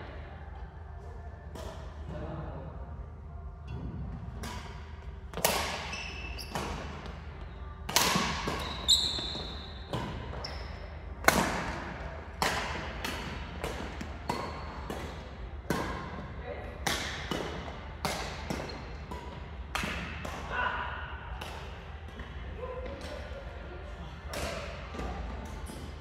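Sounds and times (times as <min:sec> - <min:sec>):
rackets hitting shuttlecock: 0:01.5 - 0:02.2, 0:03.7 - 0:10.5, 0:11.2 - 0:20.6, 0:24.2 - 0:26.0
shoes squeaking on court floor: 0:05.6 - 0:07.6, 0:08.4 - 0:11.0.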